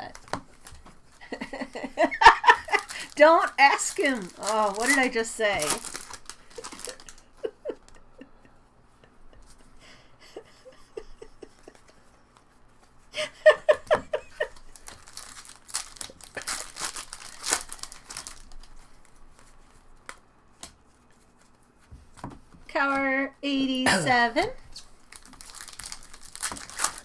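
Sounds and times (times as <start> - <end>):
foil wrapper crinkling and tearing: 0.0 - 7.5, 14.4 - 19.8, 24.7 - 27.0
laughter: 1.2 - 3.0, 6.6 - 12.2, 13.2 - 14.7.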